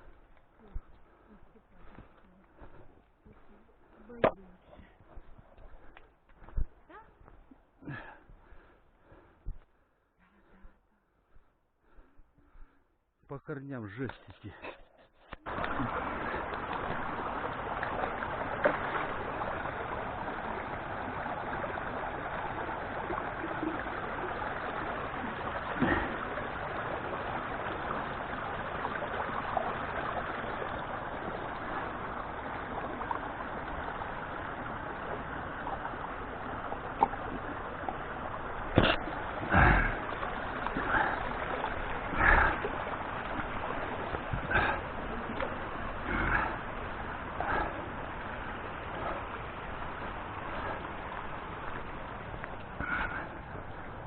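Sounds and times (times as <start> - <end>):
stream rushing: 0.0 - 0.3, 15.4 - 54.0.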